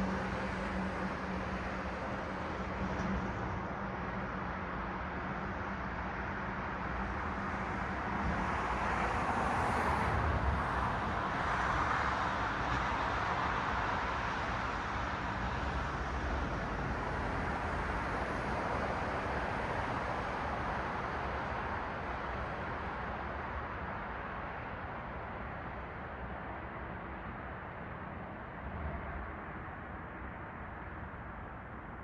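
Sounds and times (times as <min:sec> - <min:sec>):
passing cars: 0:07.0 - 0:31.7.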